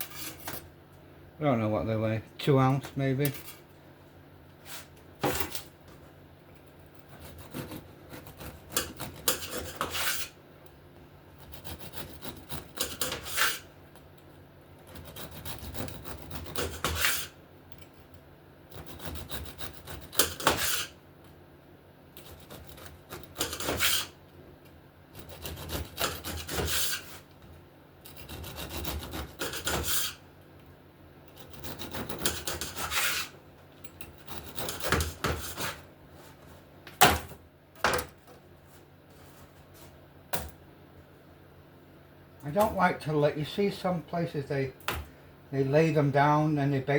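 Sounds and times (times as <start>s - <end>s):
knife sawing through biscotti: 7.0s - 10.4s, 11.4s - 13.7s, 14.8s - 17.4s, 18.7s - 21.0s, 22.2s - 24.2s, 25.2s - 27.3s, 28.0s - 30.2s, 31.4s - 33.4s, 34.2s - 35.8s.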